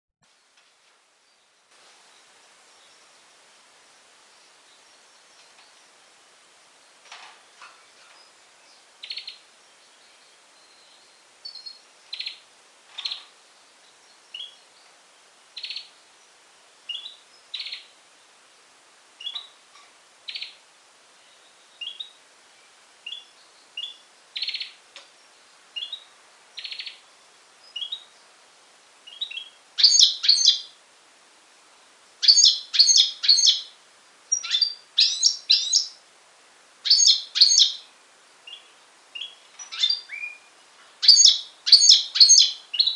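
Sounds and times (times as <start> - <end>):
finch singing: 8.0 - 15.0, 15.6 - 16.0, 16.9 - 17.9, 19.2 - 19.6, 20.3 - 20.6, 21.2 - 22.2, 23.0 - 28.3, 29.0 - 30.8, 32.2 - 36.0, 36.8 - 42.9.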